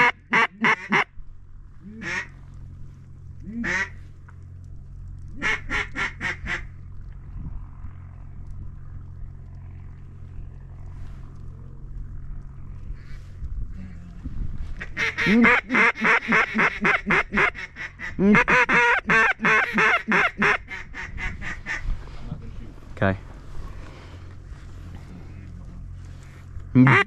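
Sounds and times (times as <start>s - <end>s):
duck call quacks: 0.0s - 1.1s, 2.0s - 2.3s, 3.6s - 4.0s, 5.4s - 6.6s, 14.8s - 21.8s, 26.8s - 27.0s
steady low rumble: 0.0s - 27.0s.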